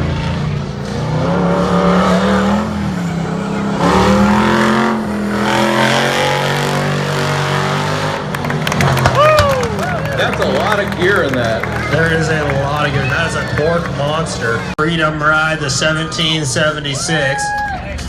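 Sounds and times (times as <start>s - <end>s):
off-road vehicle engine accelerating: 0.0s - 16.8s.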